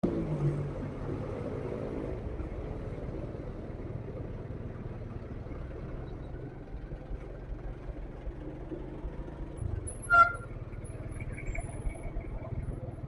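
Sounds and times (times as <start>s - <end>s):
road noise rumble: 0.0s - 13.0s
motorcycle engine running: 5.8s - 13.0s.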